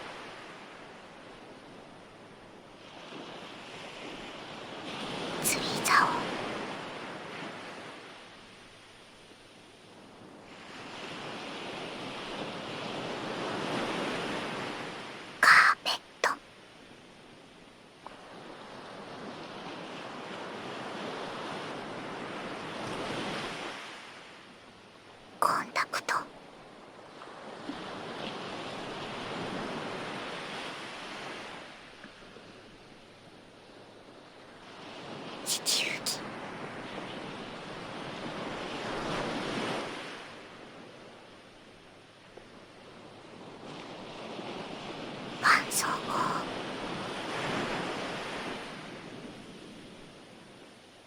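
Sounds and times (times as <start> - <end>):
ocean waves breaking on shore: 0.0 - 5.4, 10.0 - 15.4, 18.2 - 24.5, 26.9 - 32.6, 33.7 - 35.4, 36.3 - 45.4, 46.4 - 51.0
ocean waves washing on shore: 0.0 - 5.4, 9.8 - 15.4, 46.1 - 51.0.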